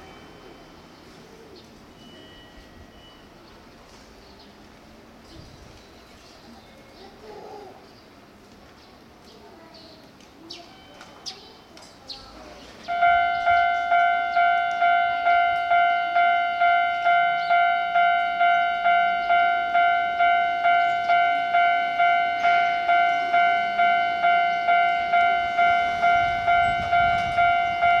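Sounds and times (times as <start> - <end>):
level-crossing warning bell: 0.0 - 3.8, 10.6 - 11.8, 12.9 - 28.0.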